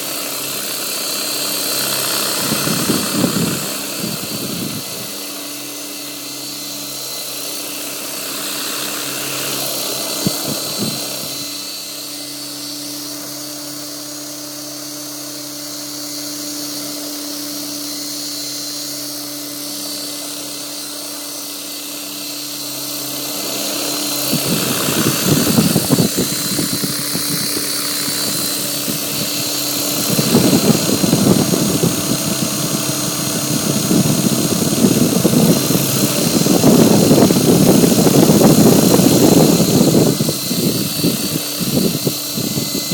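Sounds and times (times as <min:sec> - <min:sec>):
low rotor hum: 0:00.0 - 0:42.9
rc helicopter motor and rotor whine: 0:00.0 - 0:42.9
gusty rushing noise: 0:02.2 - 0:05.1, 0:24.2 - 0:42.9.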